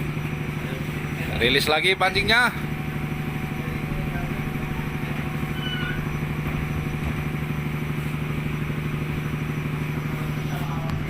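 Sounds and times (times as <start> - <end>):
boat engine running: 0.0 - 11.0
faint squeak: 5.4 - 6.3.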